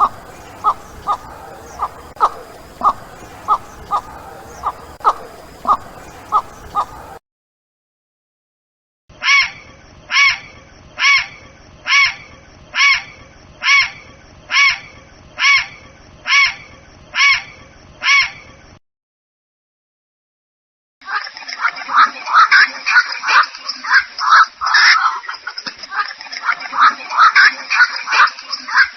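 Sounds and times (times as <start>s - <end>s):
bird calling: 0.0s - 7.2s
quick sharp bird calls: 0.0s - 7.2s.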